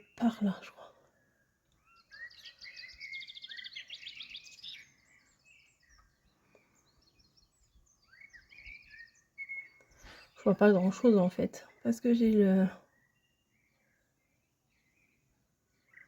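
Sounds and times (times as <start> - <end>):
faint bird chirps: 0.0 - 16.0
songbird trilling: 1.8 - 6.2, 7.1 - 11.4.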